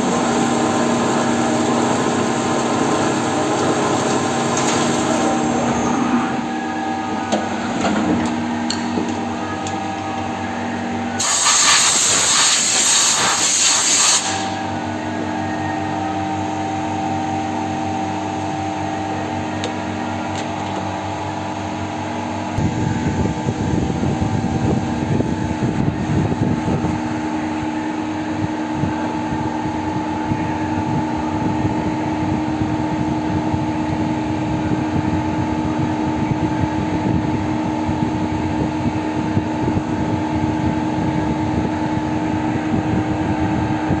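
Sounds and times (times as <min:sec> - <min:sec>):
lathe machine hum: 0:00.0 - 0:11.3
rough noisy machining sound: 0:00.0 - 0:21.3.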